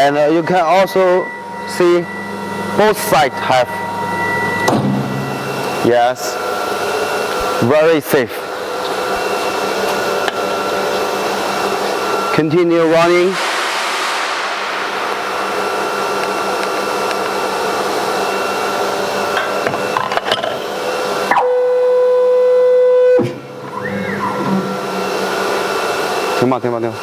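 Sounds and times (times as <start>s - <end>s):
steady mid-pitched tone: 12.7s - 18.0s.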